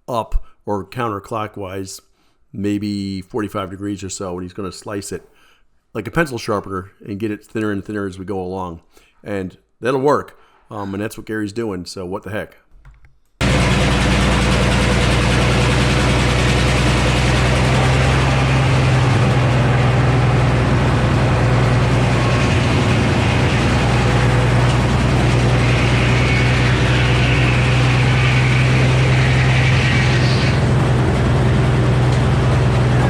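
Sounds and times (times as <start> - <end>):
circular saw cutting log: 13.4 - 33.0
sawmill engine drone: 13.4 - 33.0.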